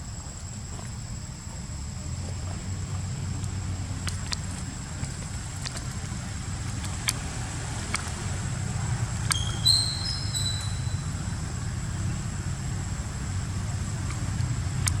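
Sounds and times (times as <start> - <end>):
faint clicks: 2.3 - 11.1, 13.9 - 15.0
baby monkey squeaking: 9.3 - 11.2.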